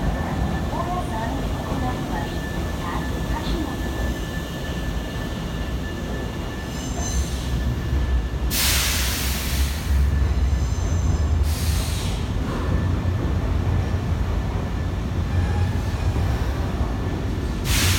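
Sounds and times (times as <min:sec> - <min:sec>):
electric train rumbling: 0:00.0 - 0:17.9
high wheel squeals: 0:05.6 - 0:07.8
loud bursts of hiss: 0:17.7 - 0:17.9.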